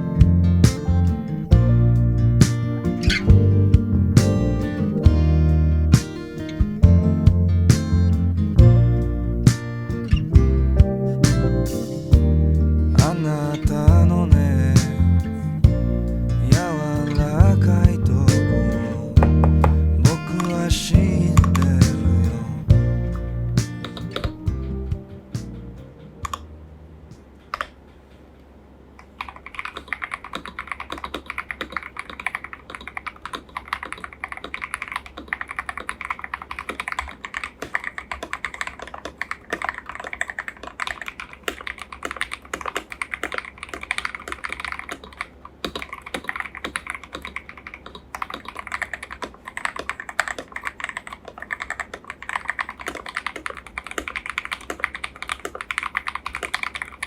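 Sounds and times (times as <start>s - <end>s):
mechanical keyboard typing: 29.1s - 57.0s.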